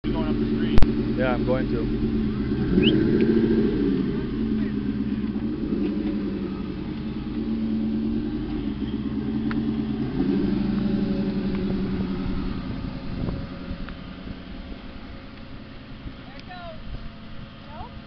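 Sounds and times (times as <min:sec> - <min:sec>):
car engine pulsing exhaust: 0:00.0 - 0:18.0.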